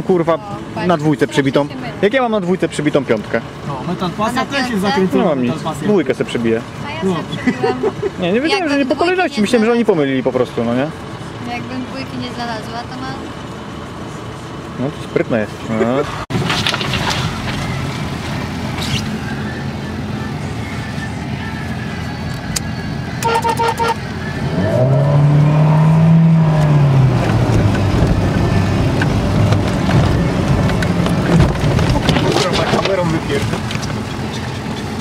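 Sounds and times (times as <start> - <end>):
car engine running: 0.0 - 35.0
short horn toots: 23.2 - 24.1.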